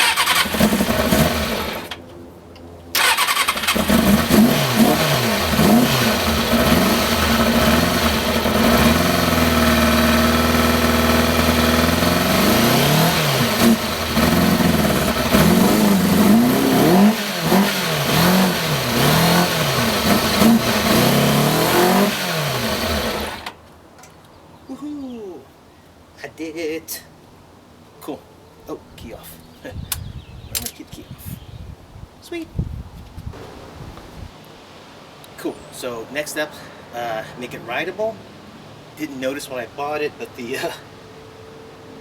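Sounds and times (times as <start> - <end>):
motorcycle engine revving: 0.0 - 2.0, 3.0 - 23.6.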